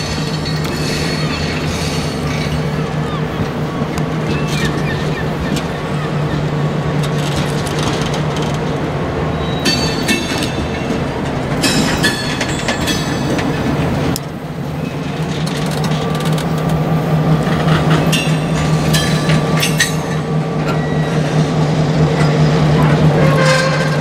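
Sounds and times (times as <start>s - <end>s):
wheel flanges squealing: 0.0s - 6.6s, 9.3s - 10.9s
diesel locomotive engine running: 0.0s - 24.0s.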